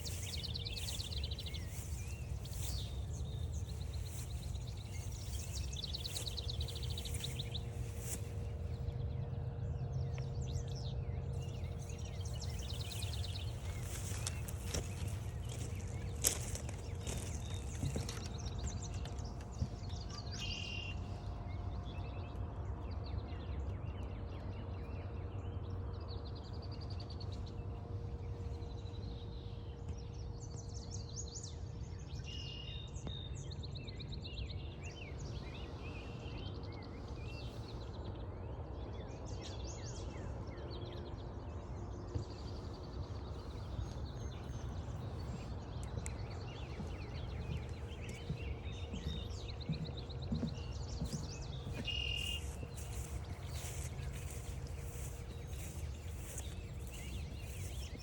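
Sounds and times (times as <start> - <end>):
steady low rumble: 0.0 - 20.4, 42.5 - 58.0
wild birds chirping and trilling: 0.0 - 22.2, 30.4 - 58.0.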